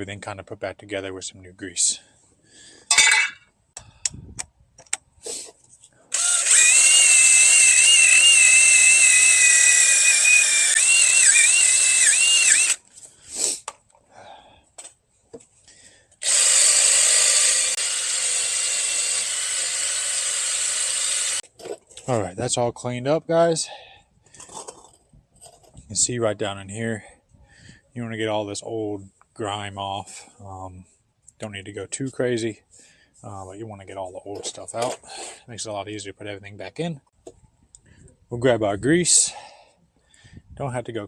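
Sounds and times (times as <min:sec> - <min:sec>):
wire wheel power tool whining: 0:06.1 - 0:12.8, 0:16.2 - 0:21.4.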